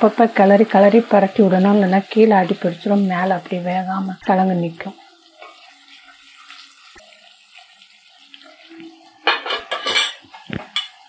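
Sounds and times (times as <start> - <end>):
potatoes sizzling in oil: 0.0 - 11.0
metal plate clattering on pan: 9.2 - 11.0.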